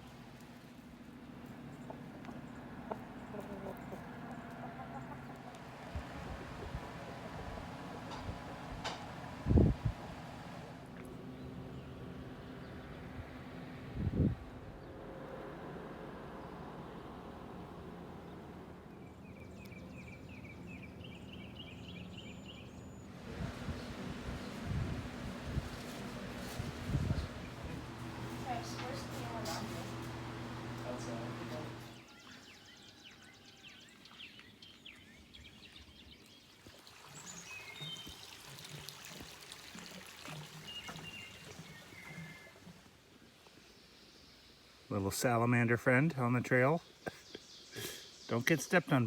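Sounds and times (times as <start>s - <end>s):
woodland birdsong: 0.5s - 9.4s, 11.1s - 13.2s, 18.2s - 38.4s, 40.4s - 49.0s
bird chirping: 18.9s - 23.1s
steady low rumble: 23.1s - 32.0s.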